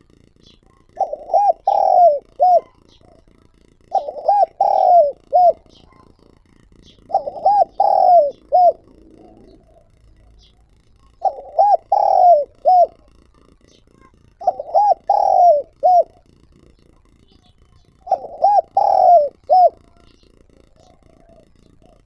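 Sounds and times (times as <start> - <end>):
dove cooing: 0.0 - 22.0
small birds chirping: 0.0 - 22.0.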